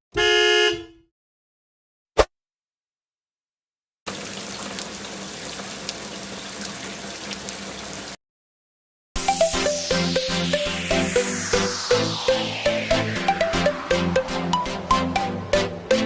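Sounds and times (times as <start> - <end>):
running water: 4.1 - 8.2.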